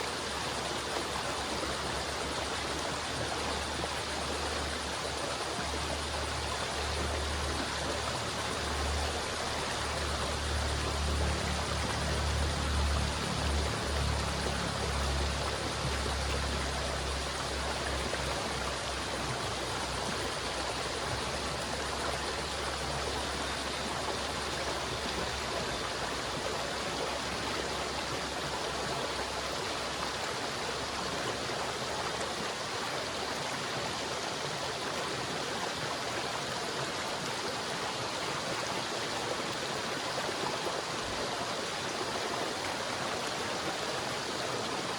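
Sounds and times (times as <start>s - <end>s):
river water rushing: 0.0s - 44.9s.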